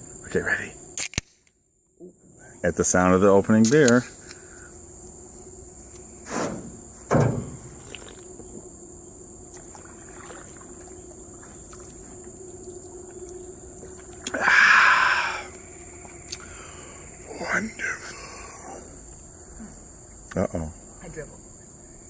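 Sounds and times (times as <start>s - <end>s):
crickets chirring: 0.0s - 22.0s
beer can cracked open: 1.0s - 1.5s
short knocks: 6.3s - 8.6s.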